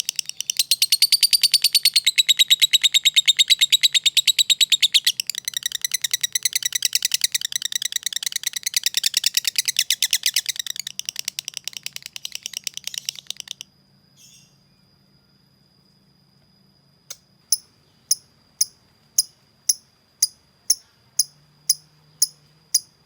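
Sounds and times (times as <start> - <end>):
lovebird chattering call: 0.0 - 13.6.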